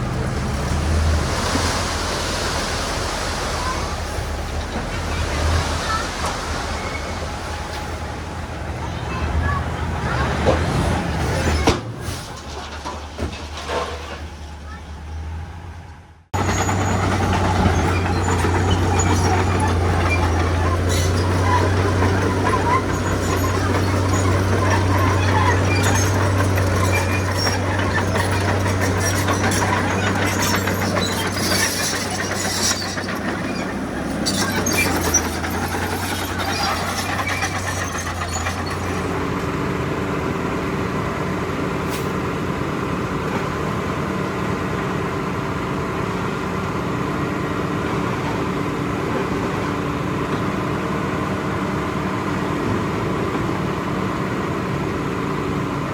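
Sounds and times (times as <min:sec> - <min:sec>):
heavy diesel machinery engine: 0:00.0 - 0:55.9
metallic clanking: 0:16.4 - 0:39.6.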